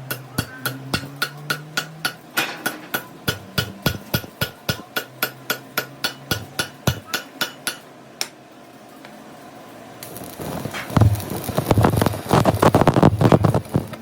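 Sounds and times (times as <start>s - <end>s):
hammer striking metal: 0.0s - 8.3s.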